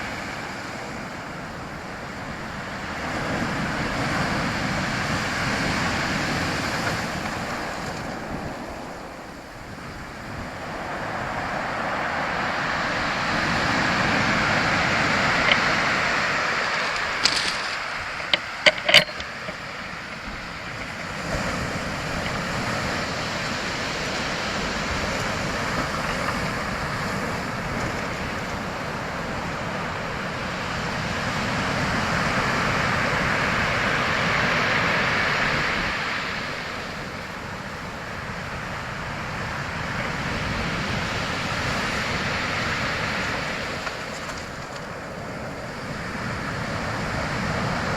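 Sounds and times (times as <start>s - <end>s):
waves washing in: 0.0s - 47.9s
sharp clicks: 16.9s - 19.7s.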